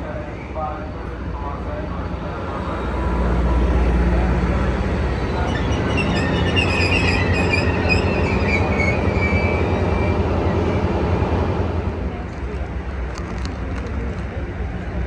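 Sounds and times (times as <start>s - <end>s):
train rumbling on tracks: 0.0s - 15.0s
train wheels squealing: 4.8s - 11.4s.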